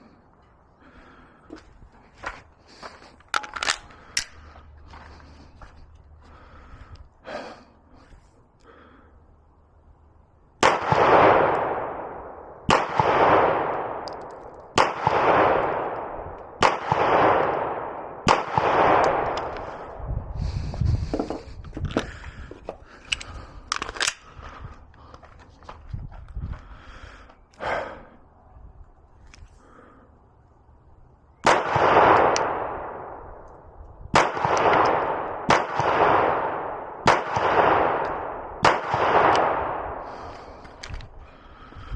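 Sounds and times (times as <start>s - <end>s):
handling clicks and clatter: 3.2s - 4.5s, 14.1s - 14.7s, 21.2s - 24.3s
pistol shots echoing: 10.6s - 19.5s, 31.4s - 33.2s, 34.1s - 40.1s.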